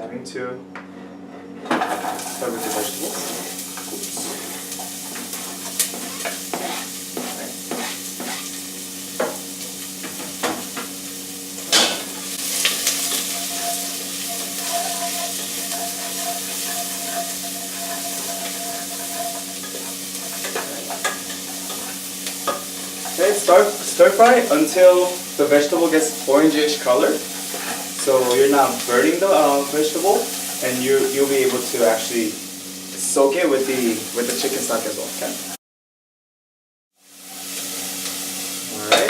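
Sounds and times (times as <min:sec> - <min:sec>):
utensil scraping a pot: 0:01.4 - 0:09.3, 0:12.1 - 0:31.8
vegetables sizzling in oil: 0:01.8 - 0:35.6, 0:37.0 - 0:39.0.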